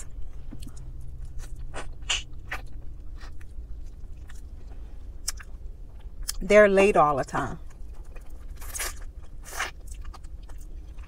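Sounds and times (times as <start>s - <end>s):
chewing and mouth smacks: 0.1s - 6.4s, 7.6s - 11.0s.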